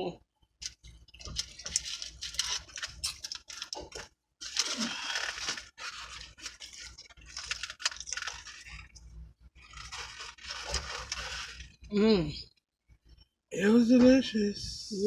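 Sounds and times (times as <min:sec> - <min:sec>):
food chewing and crunching: 0:00.6 - 0:11.9.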